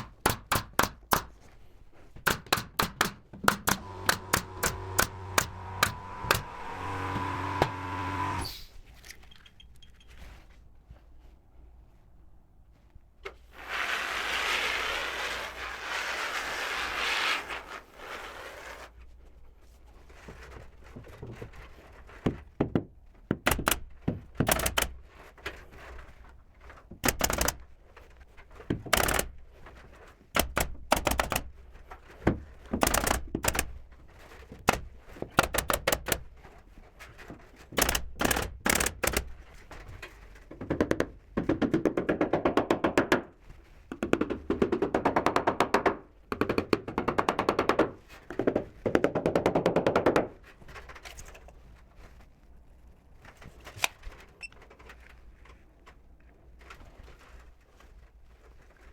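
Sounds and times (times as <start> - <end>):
nail gun firing: 0.0 - 1.4, 2.2 - 8.7, 23.5 - 25.0, 27.0 - 27.7, 28.8 - 29.4, 30.4 - 31.6, 32.8 - 33.8, 34.7 - 36.3, 37.8 - 39.4.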